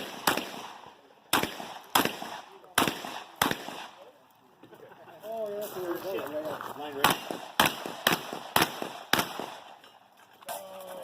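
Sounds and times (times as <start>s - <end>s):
shotgun shots echoing: 0.0s - 4.1s, 7.0s - 9.8s.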